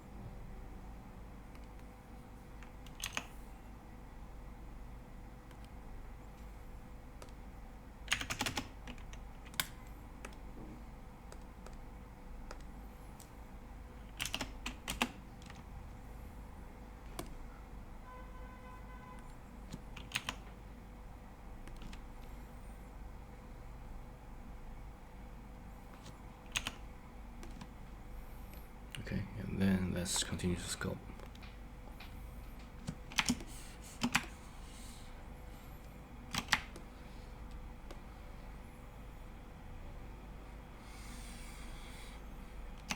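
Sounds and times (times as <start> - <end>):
low steady hum: 0.0 - 42.9
computer keyboard keystrokes: 1.5 - 1.9, 2.6 - 3.3, 5.4 - 5.8, 7.2 - 7.4, 8.1 - 10.5, 11.2 - 13.3, 14.0 - 15.7, 17.1 - 17.4, 19.2 - 20.6, 21.6 - 22.3, 25.9 - 27.8, 31.2 - 34.4, 36.3 - 36.9.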